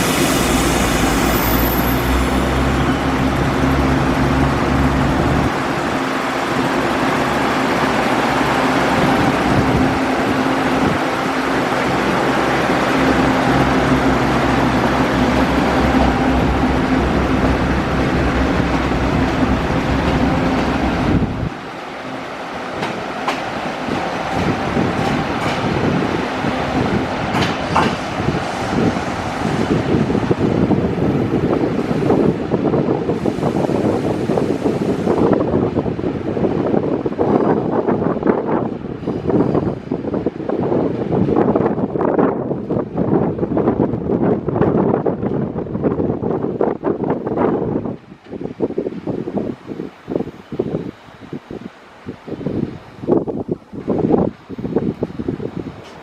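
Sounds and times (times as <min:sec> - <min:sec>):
wheels clicking over track: 0:00.0 - 0:05.9, 0:15.8 - 0:21.5
train rumbling past: 0:00.0 - 0:41.9.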